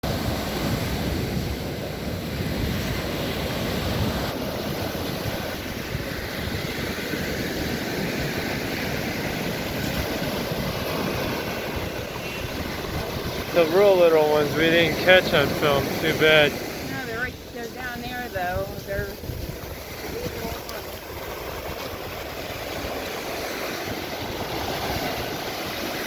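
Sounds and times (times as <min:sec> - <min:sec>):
surf on beach: 0:00.0 - 0:26.0
wind buffeting microphone: 0:00.0 - 0:26.0.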